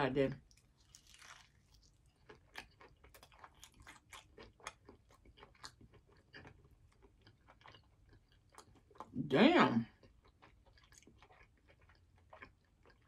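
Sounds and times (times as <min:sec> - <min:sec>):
crunching fried chicken: 0:00.4 - 0:09.1, 0:09.9 - 0:13.0.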